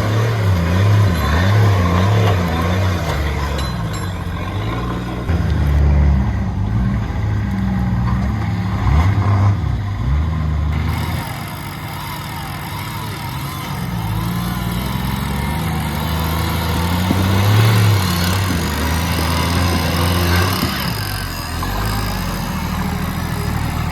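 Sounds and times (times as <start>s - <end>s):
diesel engine revving: 0.0s - 23.9s.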